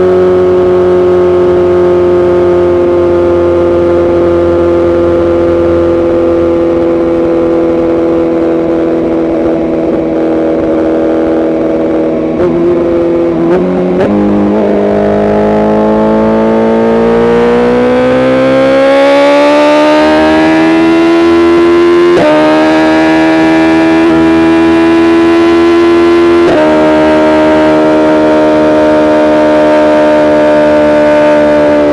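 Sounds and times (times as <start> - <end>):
motorcycle engine revving: 0.0 - 31.9
motorcycle gear changes: 3.9 - 17.1.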